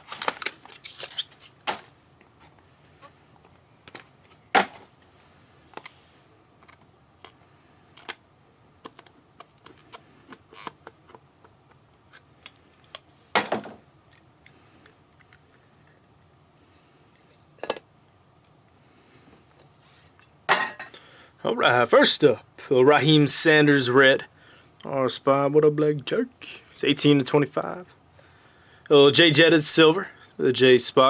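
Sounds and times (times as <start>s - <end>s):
card box and wrappers rustling: 0.0s - 5.0s.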